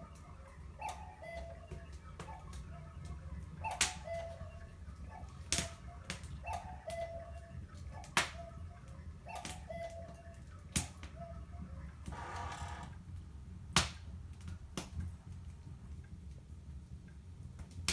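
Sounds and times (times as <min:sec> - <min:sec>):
wood fire crackling: 0:00.0 - 0:12.2, 0:12.8 - 0:17.9
low whistling tones: 0:00.0 - 0:12.9.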